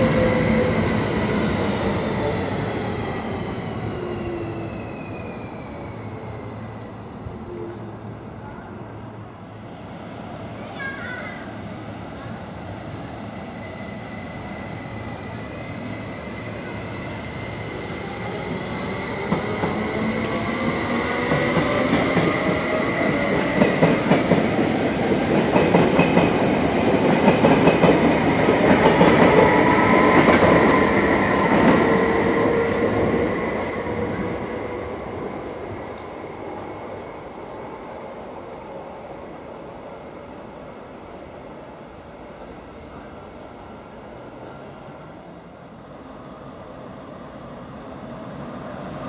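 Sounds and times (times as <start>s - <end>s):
train wheels squealing: 0.0s - 34.4s.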